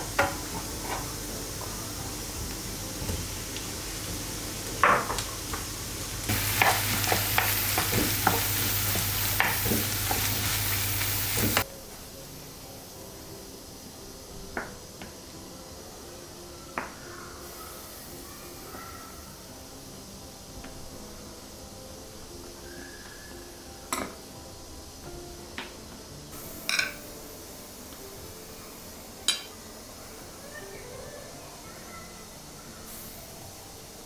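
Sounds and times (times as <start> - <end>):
utensil stirring and tapping pan: 0.0 - 1.8, 4.6 - 11.7, 29.2 - 29.6
food sizzling in a frying pan: 0.0 - 34.0.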